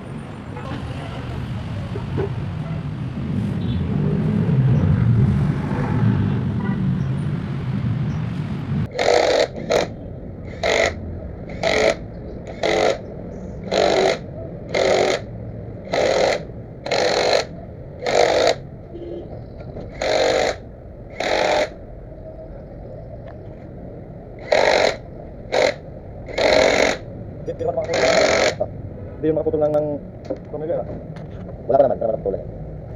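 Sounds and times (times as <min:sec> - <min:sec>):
hacksaw cutting metal: 0:08.9 - 0:18.6, 0:19.8 - 0:21.8, 0:24.4 - 0:27.1, 0:27.8 - 0:28.6.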